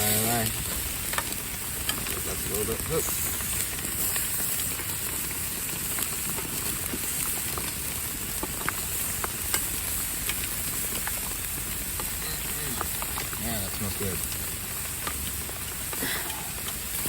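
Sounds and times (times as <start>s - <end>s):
food sizzling on a grill: 0.0s - 17.0s
rain falling: 0.0s - 17.0s
sharp grease pops: 8.3s - 11.3s.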